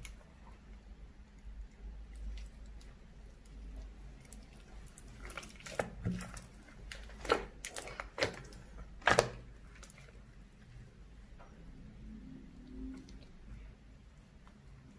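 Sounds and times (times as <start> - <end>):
slime popping and crackling: 2.1 - 10.2.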